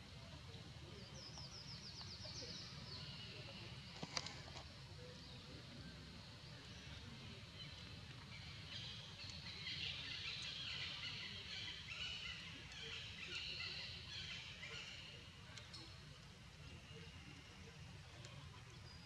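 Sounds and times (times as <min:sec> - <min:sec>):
birds chirping: 0:06.3 - 0:19.0.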